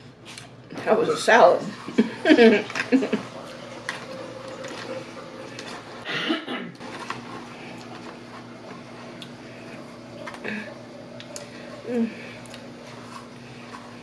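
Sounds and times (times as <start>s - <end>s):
low steady hum: 0.0s - 14.0s
person chewing: 9.1s - 10.4s.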